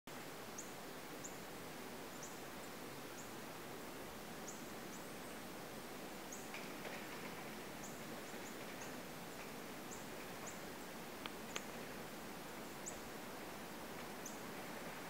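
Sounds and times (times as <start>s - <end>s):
faint outdoor hiss: 0.1s - 15.0s.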